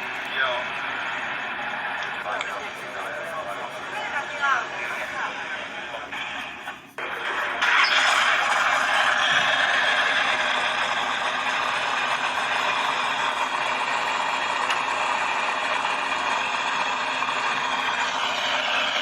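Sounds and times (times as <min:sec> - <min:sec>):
car engine running with rattle: 0:08.0 - 0:19.0.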